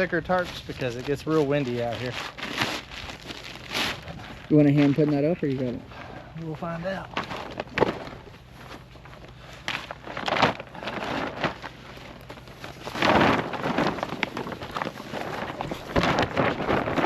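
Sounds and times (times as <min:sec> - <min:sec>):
tarp flapping: 0:00.0 - 0:05.7, 0:06.8 - 0:17.0
plastic tarp rustling and crackling: 0:00.0 - 0:05.8, 0:06.5 - 0:17.0.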